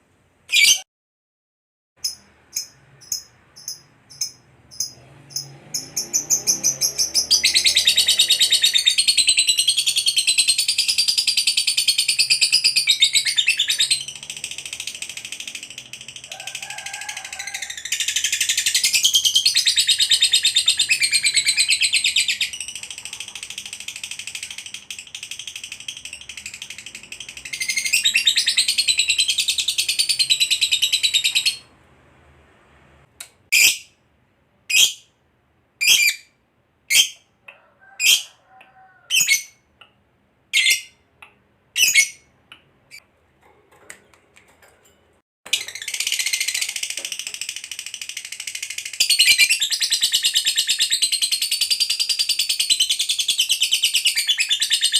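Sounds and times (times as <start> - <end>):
lovebird chattering trill: 2.0 - 16.6
soft bird chatter: 2.0 - 31.4.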